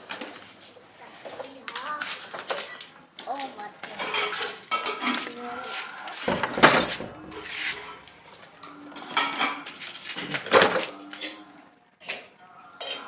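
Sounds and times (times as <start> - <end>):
children's voices: 1.0 - 2.4, 3.2 - 4.1
plastic toys clattering: 1.2 - 8.2, 9.1 - 11.4.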